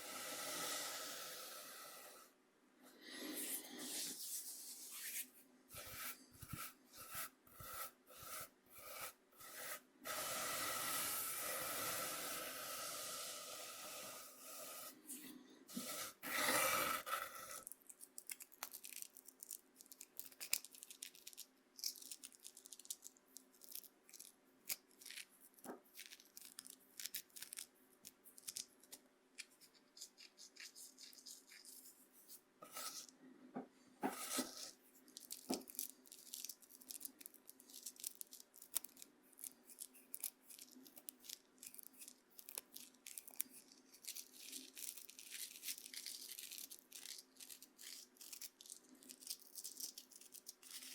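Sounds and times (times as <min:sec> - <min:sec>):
corn meal scraping on cutting board: 0:05.8 - 0:10.2, 0:15.7 - 0:17.6, 0:32.6 - 0:33.1, 0:34.0 - 0:34.8.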